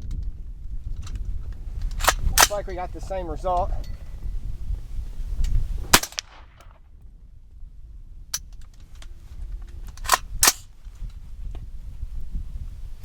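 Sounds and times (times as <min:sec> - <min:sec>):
sharp cracks: 0:01.8 - 0:03.2, 0:05.8 - 0:06.8, 0:09.9 - 0:10.7
rifle shot: 0:02.0 - 0:02.9, 0:05.8 - 0:06.8, 0:10.0 - 0:10.7.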